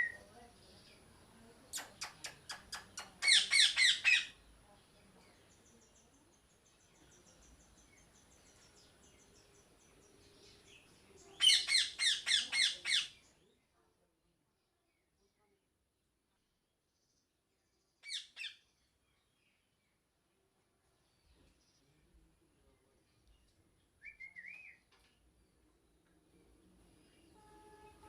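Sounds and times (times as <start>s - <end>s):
small birds chirping: 0.0s - 14.0s, 16.6s - 28.0s
parrot squawking: 3.2s - 4.3s, 11.4s - 13.1s.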